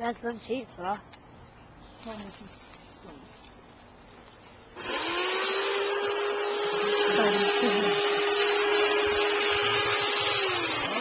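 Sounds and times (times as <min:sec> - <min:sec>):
electric garden cutter motor whine: 0:04.7 - 0:11.0.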